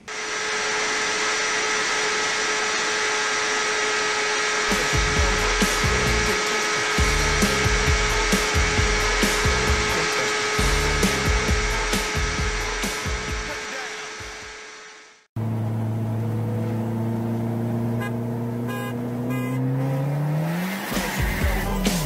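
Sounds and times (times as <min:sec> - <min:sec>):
motorcycle engine high revs whine: 0:00.0 - 0:22.0
deep music beat: 0:07.0 - 0:13.5.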